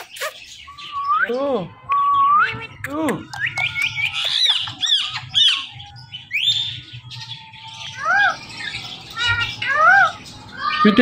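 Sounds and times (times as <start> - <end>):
parakeet squawking: 0.0 - 0.8, 3.3 - 11.0.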